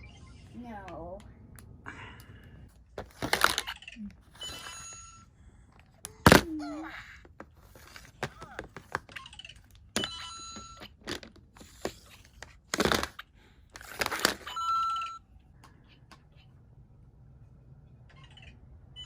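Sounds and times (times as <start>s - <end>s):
plastic clicks: 10.8s - 14.6s.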